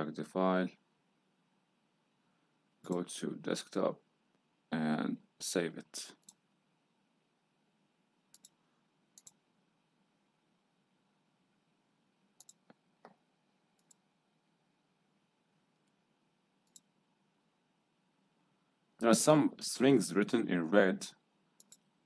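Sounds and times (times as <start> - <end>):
faint mouse clicks: 6.2 - 6.4, 8.3 - 9.4, 12.4 - 14.1, 16.6 - 17.0, 21.6 - 21.9.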